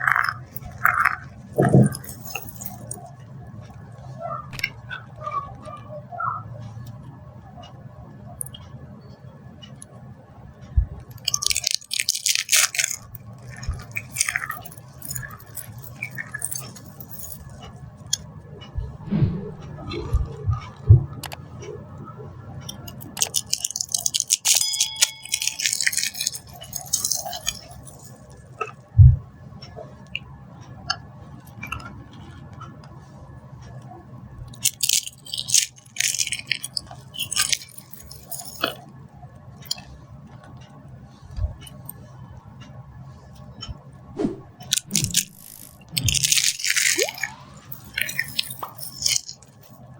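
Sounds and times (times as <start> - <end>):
dry soap crunching: 11.1 - 17.5, 22.8 - 28.3, 34.6 - 38.8, 44.7 - 49.4.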